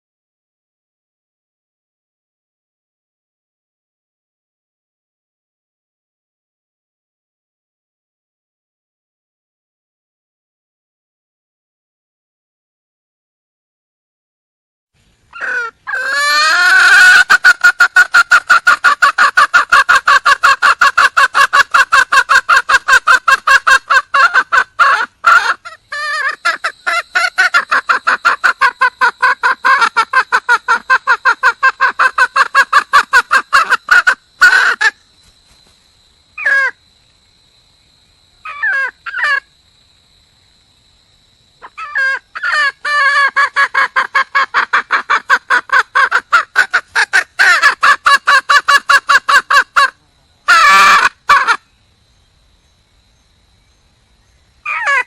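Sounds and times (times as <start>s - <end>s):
hen clucking rapidly: 15.4s - 35.0s, 41.7s - 51.6s, 54.7s - 55.0s.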